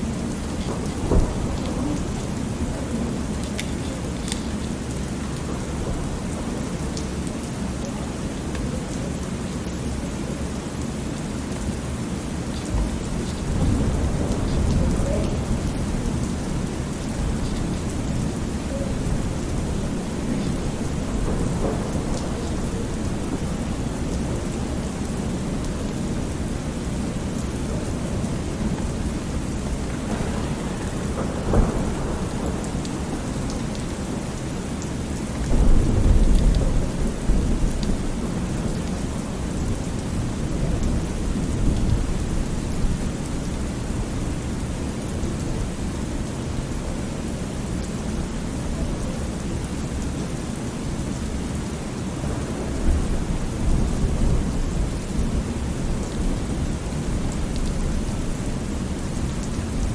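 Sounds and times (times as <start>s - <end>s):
thunder rumbling: 0.0s - 7.2s, 12.6s - 44.2s, 52.2s - 59.9s
steady rain: 0.0s - 59.9s.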